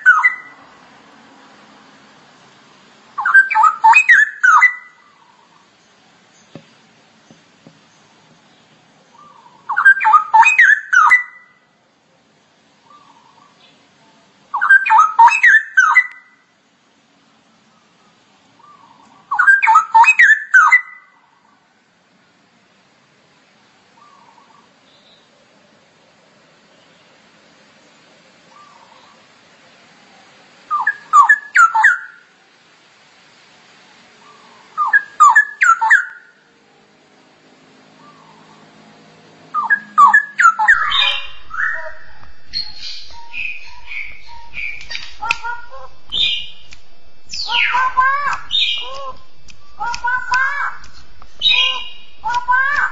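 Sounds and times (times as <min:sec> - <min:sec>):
bird singing whistled notes: 0:00.0 - 0:00.6, 0:03.2 - 0:05.0, 0:09.2 - 0:11.6, 0:14.5 - 0:16.4, 0:18.6 - 0:21.1, 0:30.7 - 0:32.2, 0:34.2 - 0:36.4, 0:39.5 - 0:52.9.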